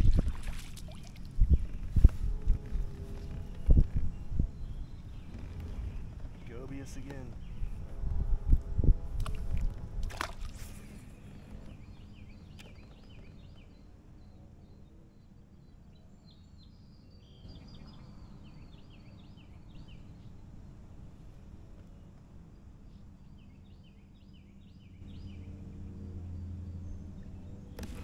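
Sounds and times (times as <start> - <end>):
small songbirds chirping: 0.0 - 8.0, 10.6 - 28.0
low outdoor rush: 1.2 - 14.1.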